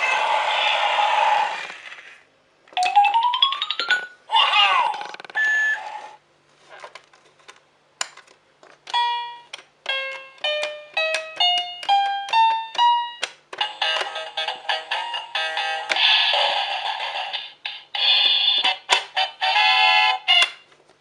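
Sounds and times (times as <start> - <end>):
toy keyboard clicks: 8.0 - 14.4
toy keyboard single notes: 8.9 - 15.6.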